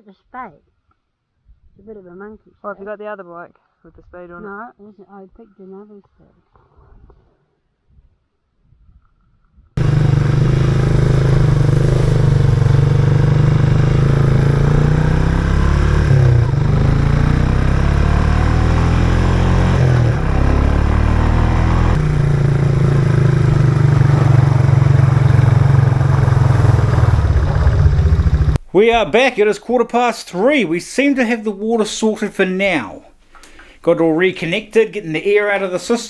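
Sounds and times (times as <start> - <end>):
motorbike engine running: 9.8 - 28.6.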